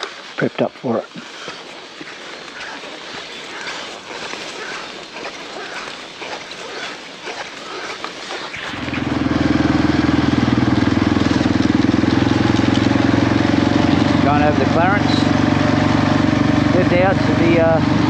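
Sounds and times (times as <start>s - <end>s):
motorcycle engine running: 3.5s - 18.0s.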